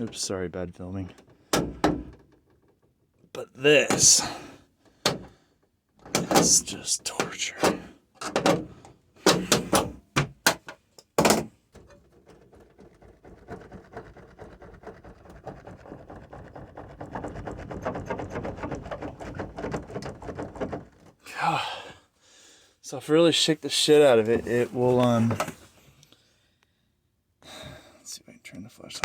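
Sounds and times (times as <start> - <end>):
van door creaking and squeaking: 6.0 - 10.4, 16.5 - 21.2.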